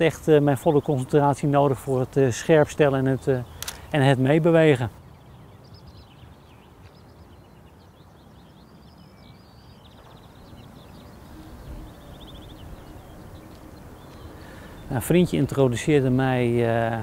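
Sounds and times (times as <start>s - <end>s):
small birds chirping: 0.0s - 17.0s
bird trill: 5.0s - 16.2s.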